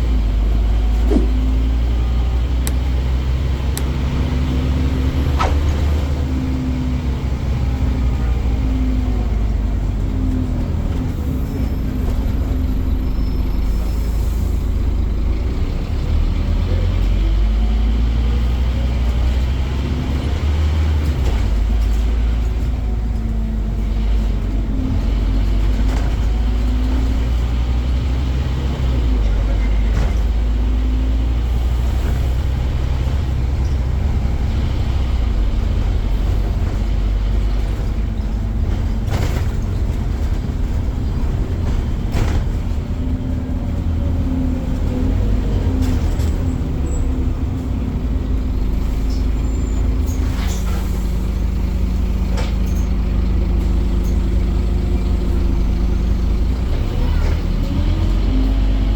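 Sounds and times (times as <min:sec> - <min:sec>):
bus diesel engine running: 0:00.0 - 0:58.9
sharp knocks: 0:01.0 - 0:01.5.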